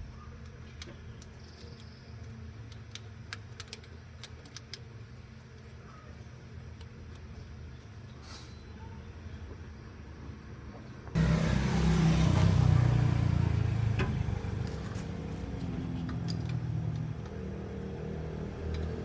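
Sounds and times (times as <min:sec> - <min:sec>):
car engine running: 0:11.0 - 0:19.0.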